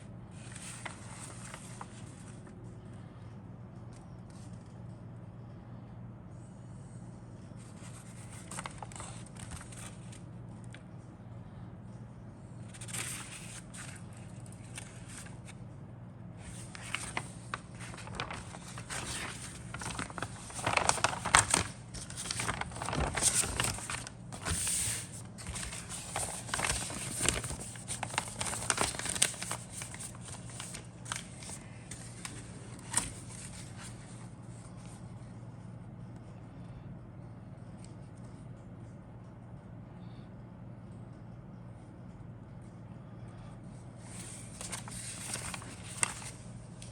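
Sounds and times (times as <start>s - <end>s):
packaging crinkling and rustling: 7.8s - 10.8s, 12.7s - 15.6s, 16.4s - 34.0s, 44.1s - 46.9s.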